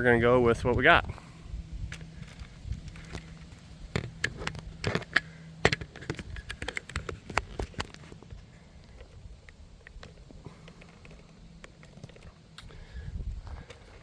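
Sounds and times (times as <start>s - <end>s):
camera being handled: 1.9s - 12.6s.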